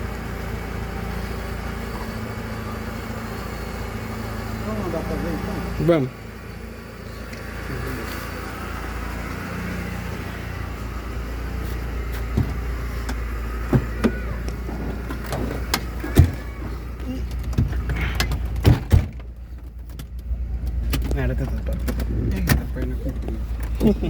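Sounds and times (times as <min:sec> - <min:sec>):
car engine rumble: 0:00.0 - 0:24.0
sharp clicks and knocks: 0:17.2 - 0:23.8.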